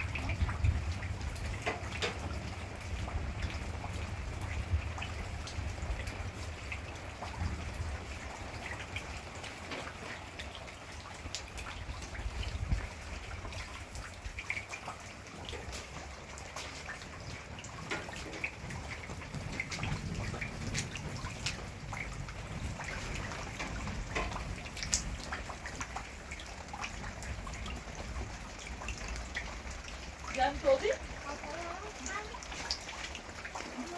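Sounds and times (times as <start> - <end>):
rain falling: 0.0 - 33.9
raindrops tapping close by: 0.0 - 33.9.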